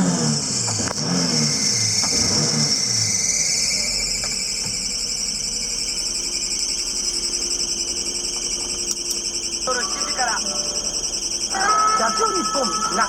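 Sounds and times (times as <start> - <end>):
small engine revving: 0.0 - 5.5
insects chorus: 1.4 - 13.0.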